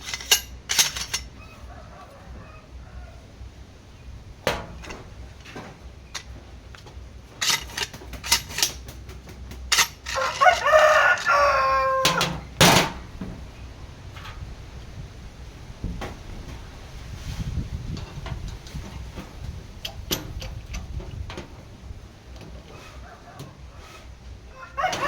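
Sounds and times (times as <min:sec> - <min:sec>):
rooster crowing: 0:01.4 - 0:03.5, 0:10.1 - 0:12.5, 0:22.8 - 0:25.0.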